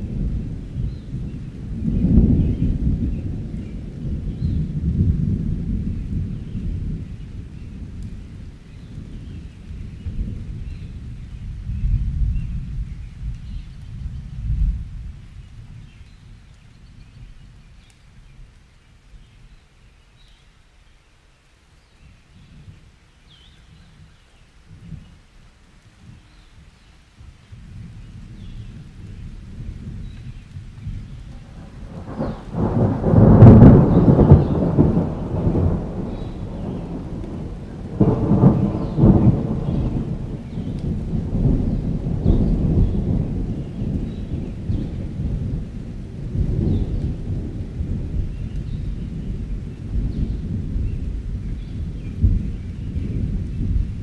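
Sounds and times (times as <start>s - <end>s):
thunder rumble: 0.0s - 17.7s, 27.2s - 54.0s
rain hissing: 0.0s - 54.0s
birds chirping: 31.1s - 33.0s.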